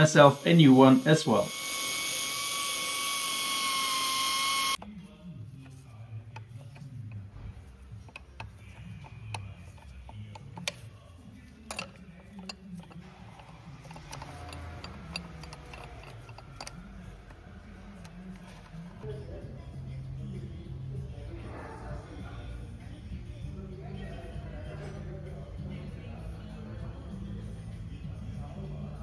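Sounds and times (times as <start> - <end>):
power tool whining: 0.0 - 4.8
metal parts clicking: 7.9 - 19.0.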